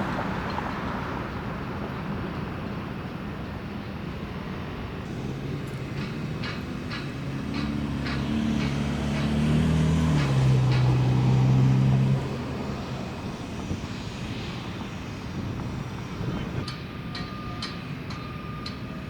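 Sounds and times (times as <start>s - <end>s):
low engine drone: 5.0s - 16.7s
light irregular knocks: 5.1s - 12.2s.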